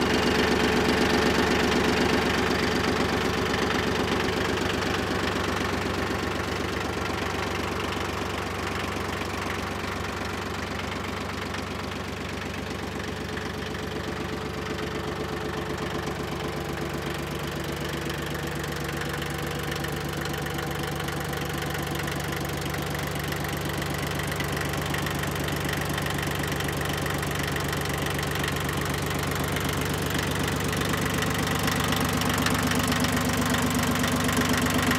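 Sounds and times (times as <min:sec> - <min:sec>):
diesel tractor engine running: 0:00.0 - 0:34.9.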